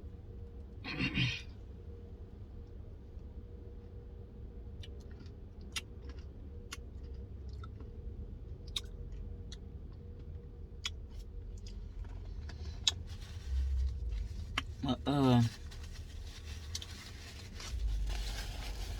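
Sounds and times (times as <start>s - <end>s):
person chewing food: 4.8s - 13.1s.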